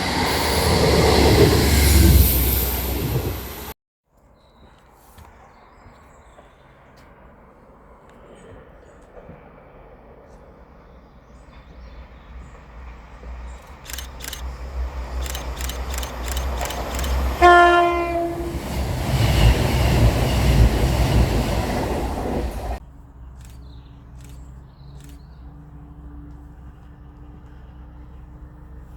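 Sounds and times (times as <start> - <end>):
train passing rumble: 0.0 - 3.8, 6.4 - 28.9
sharp clicks: 13.6 - 14.6, 15.2 - 17.4
train horn: 17.4 - 18.7.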